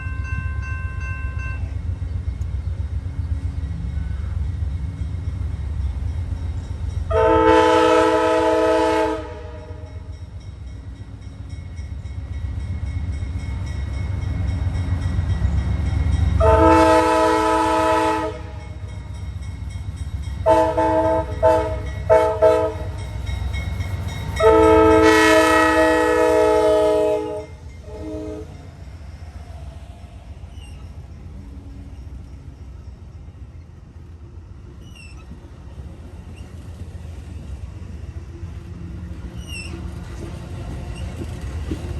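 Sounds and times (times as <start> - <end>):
train rumbling past: 0.0 - 41.9
train air horn blasts: 7.1 - 10.1, 16.4 - 18.9, 20.4 - 22.9, 24.4 - 28.6.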